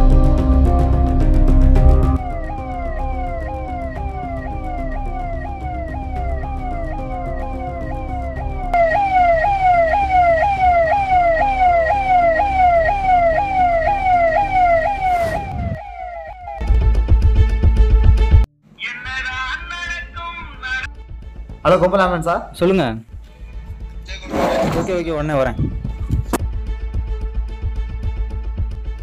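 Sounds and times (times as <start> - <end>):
ambulance siren sweeping: 2.2 - 16.7
rising whoosh: 14.4 - 16.7.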